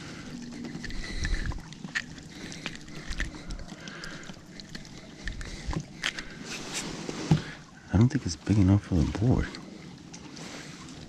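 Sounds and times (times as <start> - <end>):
fish flopping against plastic kayak: 0.5 - 7.7.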